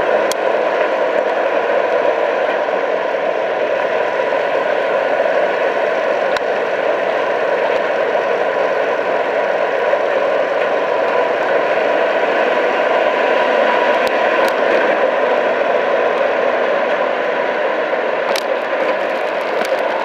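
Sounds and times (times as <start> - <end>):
air conditioning whir: 0.0 - 16.4
steady hum tones: 2.7 - 16.5.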